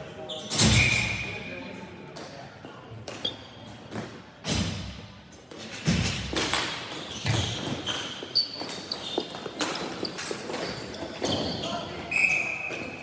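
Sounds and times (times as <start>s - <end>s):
clacks of sticks and ball: 5.6s - 11.5s.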